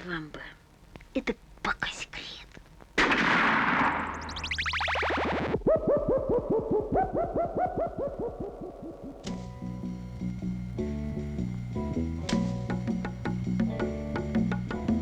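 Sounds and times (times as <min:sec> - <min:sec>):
blooping synth notes: 0:04.0 - 0:11.4.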